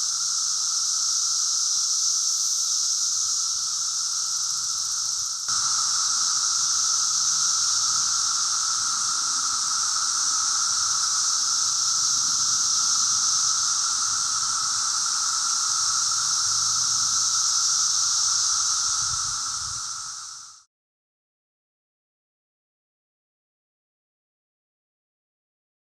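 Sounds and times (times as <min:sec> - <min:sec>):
cicadas chorus: 0:00.0 - 0:20.7.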